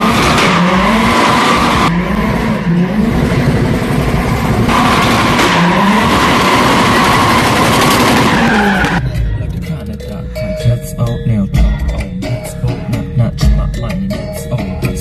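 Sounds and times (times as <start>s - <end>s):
car engine revving: 0.0s - 9.9s
tyres squealing: 4.7s - 9.0s.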